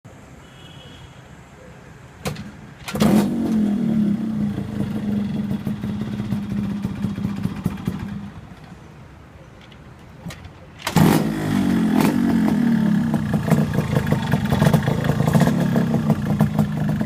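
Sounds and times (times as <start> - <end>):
two-stroke engine running: 4.2 - 8.4, 10.8 - 17.0.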